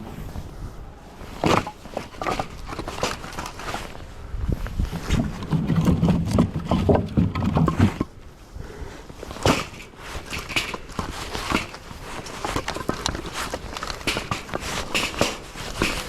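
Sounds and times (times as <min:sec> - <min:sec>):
firewood pieces knocking together: 0:01.4 - 0:03.7, 0:05.2 - 0:08.1, 0:09.4 - 0:16.0.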